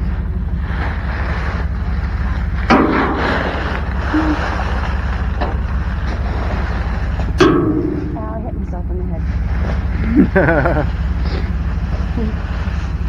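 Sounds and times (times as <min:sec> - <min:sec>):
rummaging through trash: 0:00.0 - 0:13.0
steady low hum: 0:00.0 - 0:13.0
light clunks: 0:02.6 - 0:13.0
sharp knock: 0:07.4 - 0:09.3.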